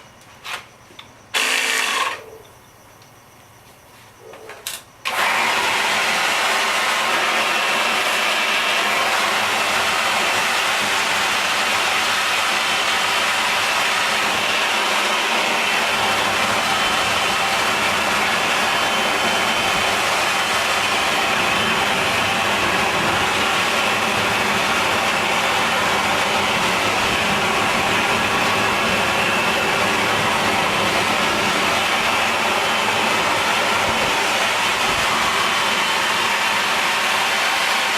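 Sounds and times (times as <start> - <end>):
jet engine rushing roar: 5.0 - 37.9.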